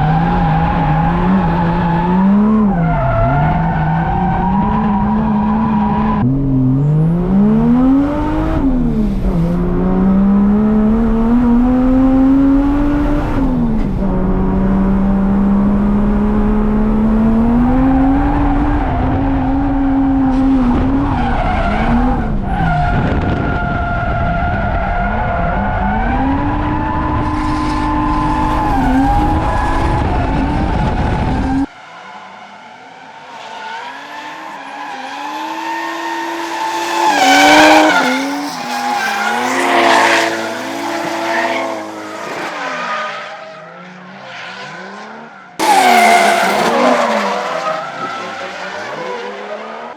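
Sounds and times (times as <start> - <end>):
car engine at high revs: 0.0 - 49.9
tyres skidding: 17.9 - 49.9.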